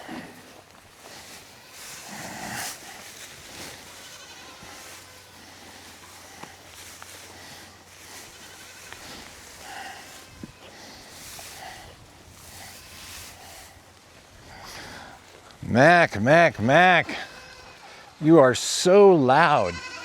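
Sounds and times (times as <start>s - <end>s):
livestock rustling in hay: 0.0s - 15.6s
goat bleating: 1.2s - 2.8s, 3.5s - 5.7s, 7.3s - 11.1s, 16.6s - 18.1s, 19.3s - 20.0s.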